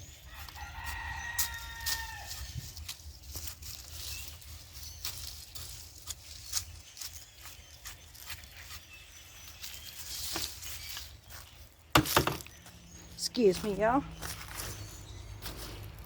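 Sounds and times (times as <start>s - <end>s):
scraping soil: 0.3s - 12.3s.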